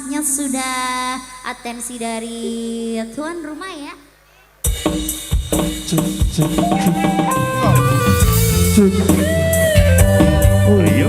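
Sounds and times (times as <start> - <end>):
drums: 4.6 - 11.0
live band playing: 4.8 - 11.0
bass: 6.0 - 11.0
sliding melody notes: 6.6 - 9.4.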